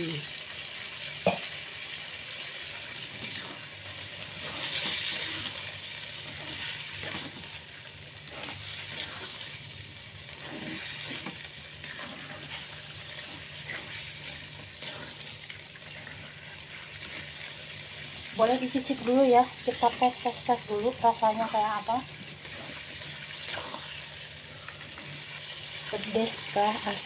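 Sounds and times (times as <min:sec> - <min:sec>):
chicken sizzling in sauce: 0:00.0 - 0:27.0
spatula scraping and knocking pan: 0:10.3 - 0:17.3.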